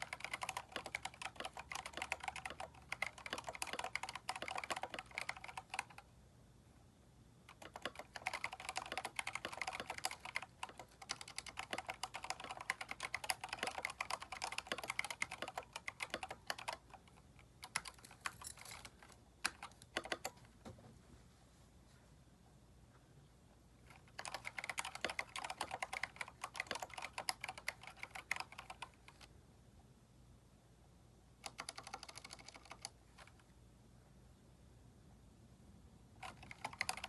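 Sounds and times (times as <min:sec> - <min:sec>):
mechanical keyboard typing: 0:00.0 - 0:06.1, 0:07.5 - 0:20.4, 0:23.9 - 0:29.3, 0:31.4 - 0:33.4, 0:36.2 - 0:37.0.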